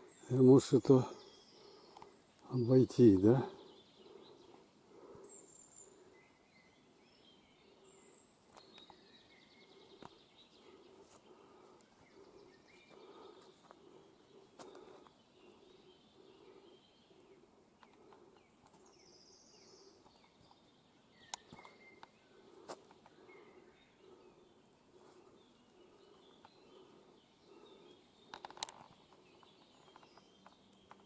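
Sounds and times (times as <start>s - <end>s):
small birds chirping: 0.0s - 31.0s
faint clicks: 21.3s - 22.2s, 28.2s - 31.0s.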